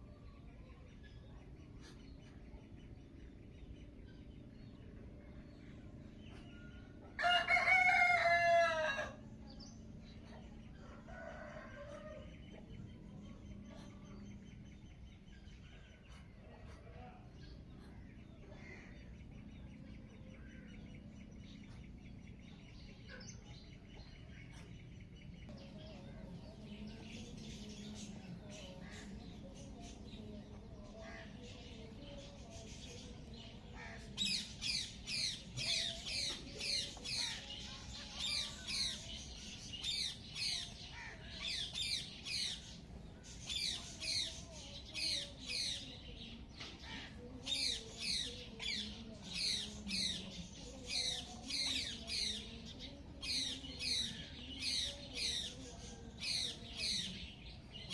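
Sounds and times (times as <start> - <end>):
birds calling: 0.0 - 57.9.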